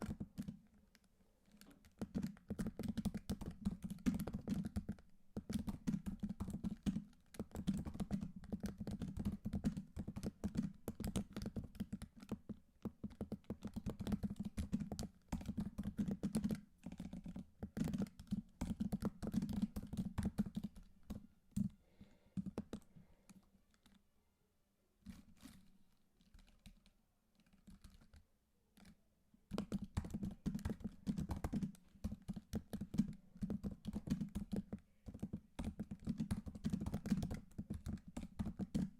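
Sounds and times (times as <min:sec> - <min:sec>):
typing on computer keyboard: 0:00.0 - 0:21.8, 0:22.4 - 0:24.0, 0:26.2 - 0:28.2, 0:28.8 - 0:38.9.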